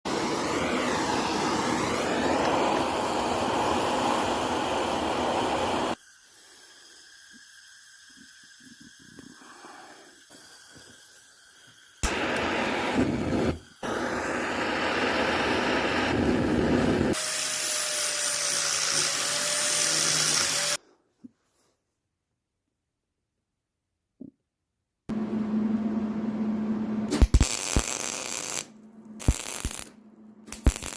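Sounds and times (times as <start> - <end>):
power tool running: 0.1 - 6.0, 12.0 - 20.8.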